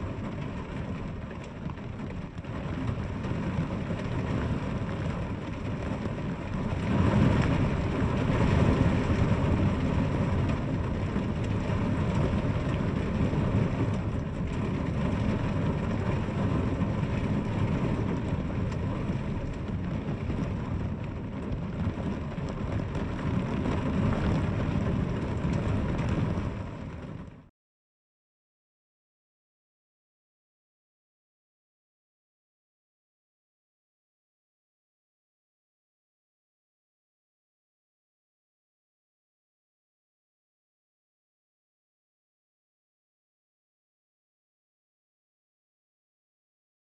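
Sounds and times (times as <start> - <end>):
heavy rain: 0.0 - 27.5.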